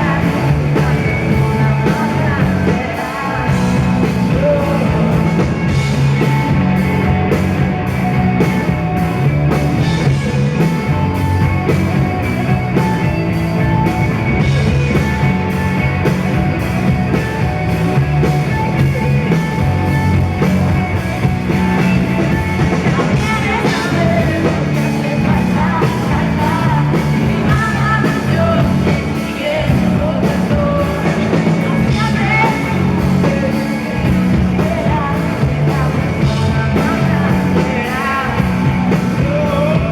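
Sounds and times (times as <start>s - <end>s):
woman singing: 0.0s - 5.8s, 22.8s - 39.9s
live rock band playing: 0.0s - 39.9s.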